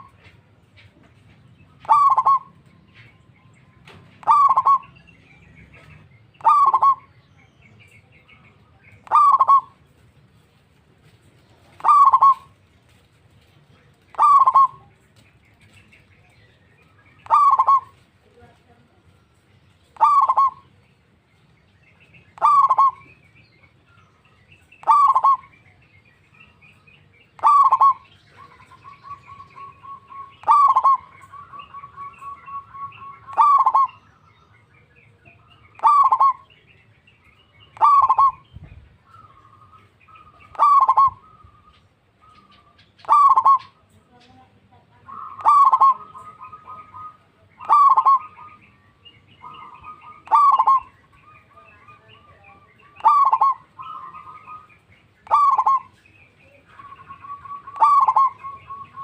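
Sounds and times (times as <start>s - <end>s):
dove cooing: 1.8s - 3.1s, 3.9s - 5.1s, 5.7s - 7.9s, 9.0s - 10.5s, 11.5s - 13.1s, 13.9s - 15.8s, 17.2s - 18.3s, 19.8s - 20.8s, 22.3s - 23.2s, 24.6s - 25.7s, 27.3s - 34.1s, 35.2s - 36.6s, 37.6s - 44.0s, 45.0s - 59.0s.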